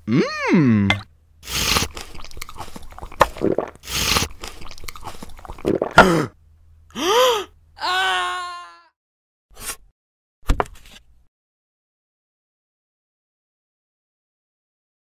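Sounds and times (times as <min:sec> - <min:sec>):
crunching chewing bites: 0:01.5 - 0:05.7.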